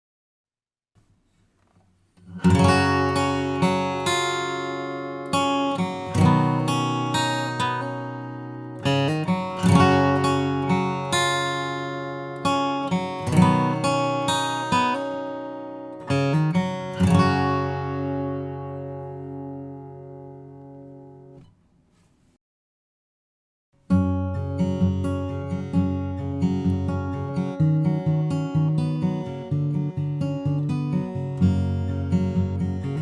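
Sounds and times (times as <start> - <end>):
acoustic guitar chords: 1.6 - 22.1, 23.8 - 33.0.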